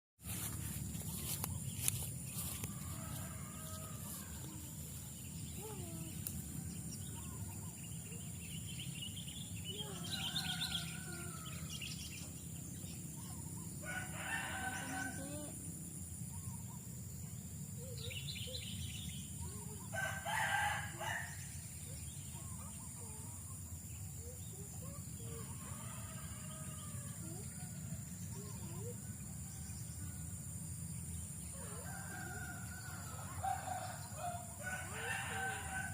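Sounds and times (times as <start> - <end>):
rooster crowing: 2.4 - 4.6, 9.8 - 11.7, 13.8 - 15.5, 19.9 - 21.4, 31.6 - 35.9.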